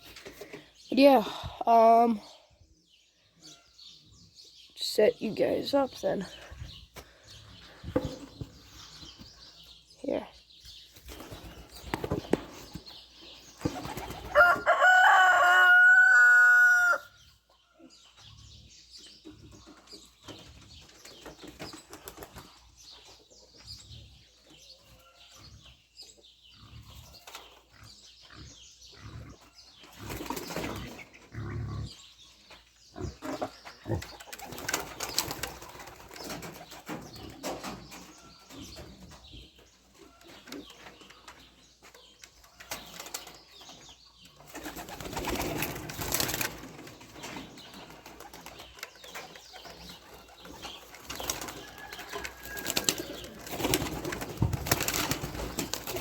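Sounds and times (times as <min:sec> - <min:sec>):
pigeons flapping wings: 0:13.6 - 0:14.5, 0:34.3 - 0:37.8, 0:44.4 - 0:56.0.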